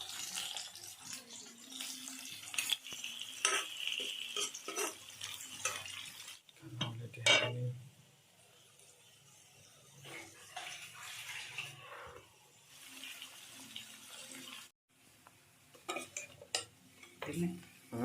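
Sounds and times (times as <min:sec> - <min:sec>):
water running: 0:00.0 - 0:06.6, 0:08.5 - 0:14.8
kitchen utensils and pots clinking: 0:00.0 - 0:07.7, 0:09.5 - 0:12.1, 0:15.7 - 0:17.5.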